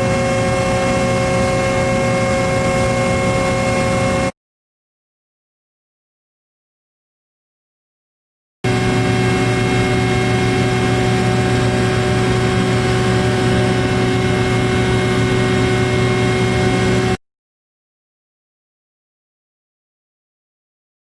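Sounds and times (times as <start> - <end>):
heavy machinery humming: 0.0 - 4.3, 8.7 - 17.2.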